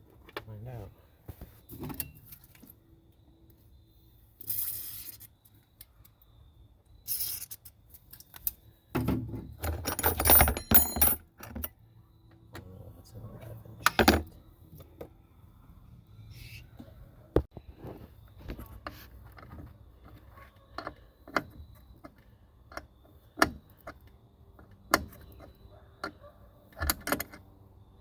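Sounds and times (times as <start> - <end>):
metal tools clinking and jangling: 9.6 - 11.7.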